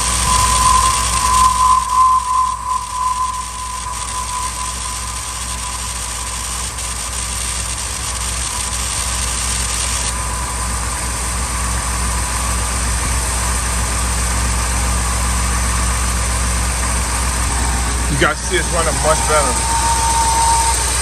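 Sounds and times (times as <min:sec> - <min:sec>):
faint steady whine: 0:00.0 - 0:21.0
truck engine idling: 0:00.0 - 0:21.0.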